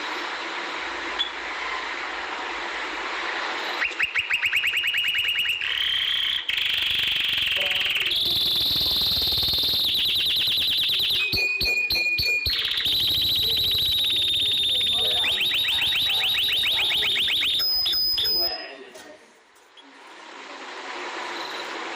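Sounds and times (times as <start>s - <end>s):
canary singing fast trills: 3.8s - 18.6s.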